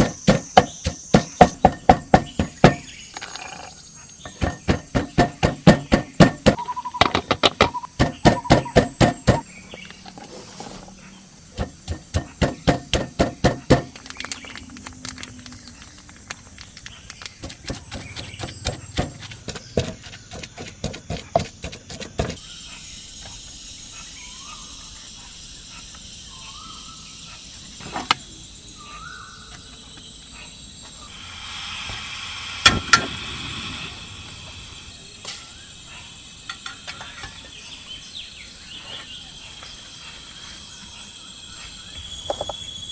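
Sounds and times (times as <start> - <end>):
knife chopping on cutting board: 0.0 - 2.8, 4.4 - 6.6, 17.4 - 22.4
insects buzzing: 0.0 - 42.9.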